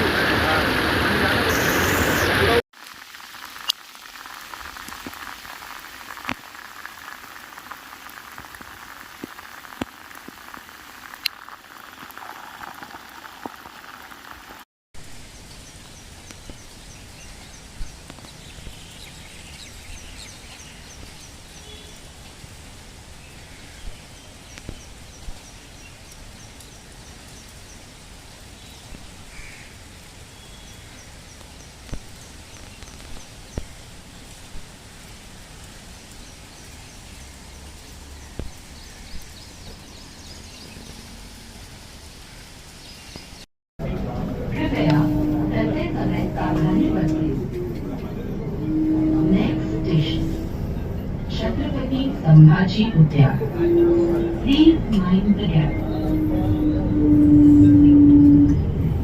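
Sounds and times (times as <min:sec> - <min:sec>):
steady rain: 0:00.0 - 0:59.0
sharp drips and splashes: 0:01.8 - 0:43.5.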